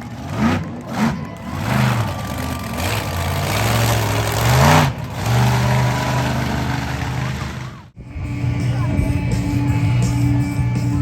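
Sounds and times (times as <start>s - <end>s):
monster truck engine revving: 0.0s - 8.0s.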